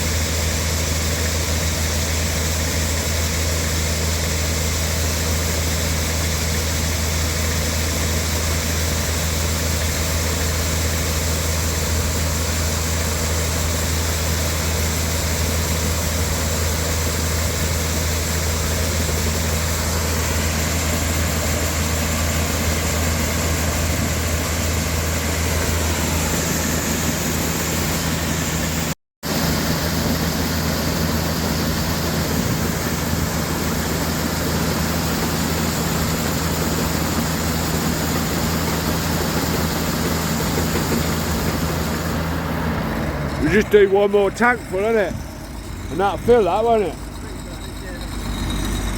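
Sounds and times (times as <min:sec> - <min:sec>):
combine harvester engine hum: 0:00.0 - 0:48.9
threshing gear rushing: 0:39.0 - 0:48.9.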